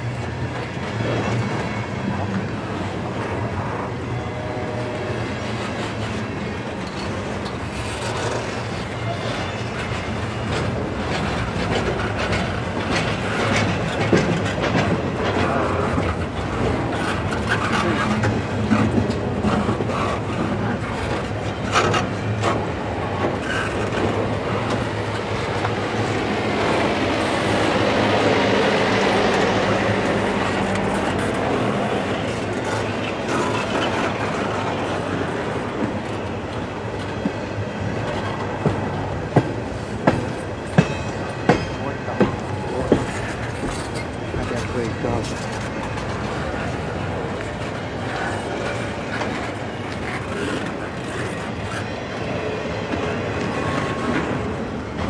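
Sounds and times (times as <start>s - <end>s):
freight train wheels rumbling: 0.0s - 55.0s
freight cars clacking and knocking: 5.4s - 51.9s.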